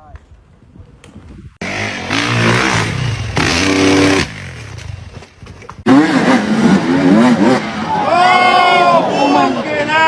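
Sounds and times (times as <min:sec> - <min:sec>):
dirt bike engine revving: 0:01.6 - 0:05.2, 0:05.8 - 0:08.0.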